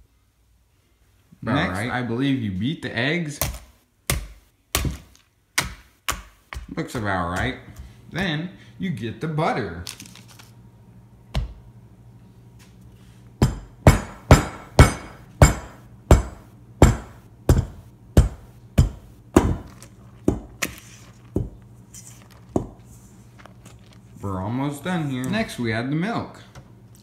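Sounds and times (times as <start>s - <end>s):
hard ringing knocks: 13.4s - 19.7s.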